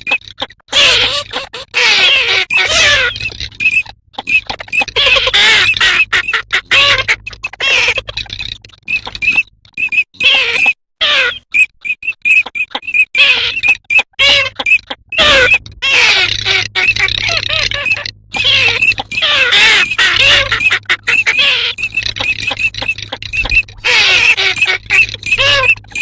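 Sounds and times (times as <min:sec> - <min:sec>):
duck calls: 0:04.9 - 0:08.2, 0:14.2 - 0:26.0.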